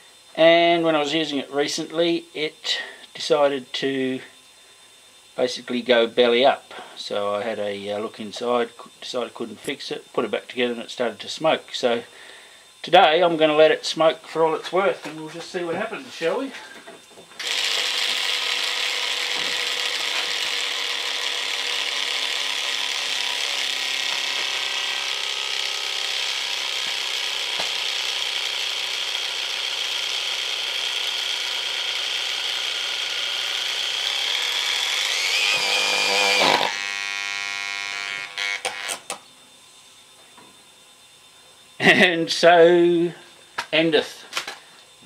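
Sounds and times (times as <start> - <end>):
angle grinder running: 17.4 - 39.1.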